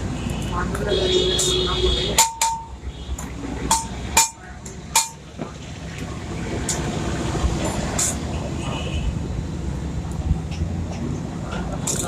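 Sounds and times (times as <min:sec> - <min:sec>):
steady background noise: 0:00.0 - 0:12.0
metal-on-metal knocks: 0:02.2 - 0:05.5.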